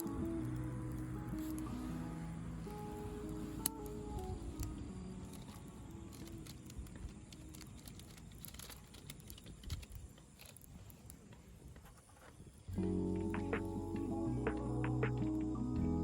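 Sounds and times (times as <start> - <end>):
background music: 0.0 - 6.7, 12.7 - 16.0
soft low rumble: 0.0 - 8.3, 12.7 - 16.0
campfire crackling: 0.0 - 16.0.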